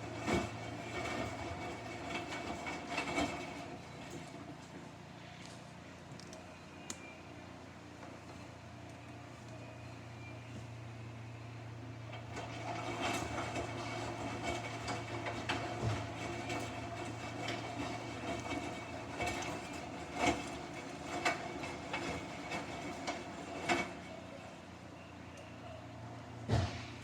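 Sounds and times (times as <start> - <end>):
washing machine humming: 12.0 - 24.8.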